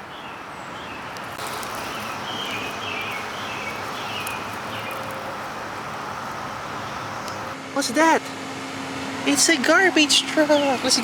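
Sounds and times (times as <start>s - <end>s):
songbird warbling: 0.0s - 7.6s
cicada chorus drone: 0.8s - 11.0s.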